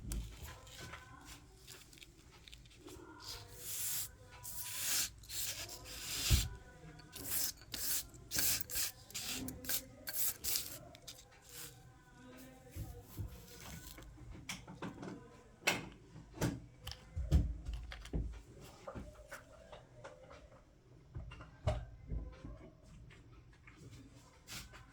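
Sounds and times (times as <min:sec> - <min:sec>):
sand scraping and tapping: 0:00.0 - 0:14.1.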